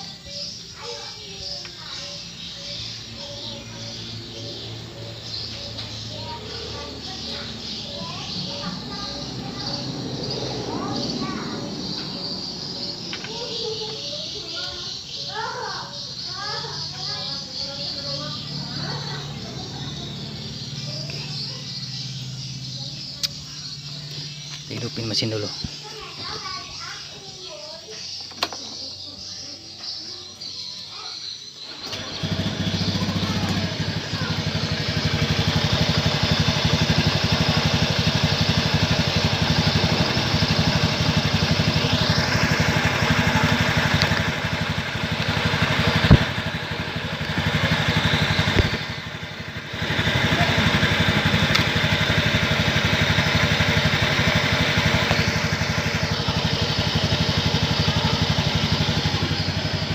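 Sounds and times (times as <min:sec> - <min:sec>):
scooter engine idling: 0:00.0 - 0:59.9
sharp click: 0:23.2 - 0:23.4.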